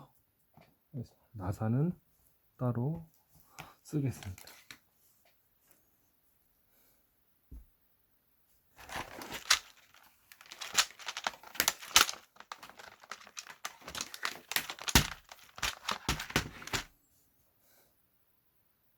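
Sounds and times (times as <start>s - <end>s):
thin plastic crinkling: 8.8s - 16.9s.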